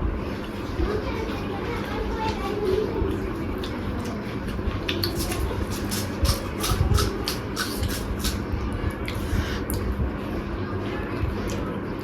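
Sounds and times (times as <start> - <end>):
crunchy chewing: 3.1 - 9.9.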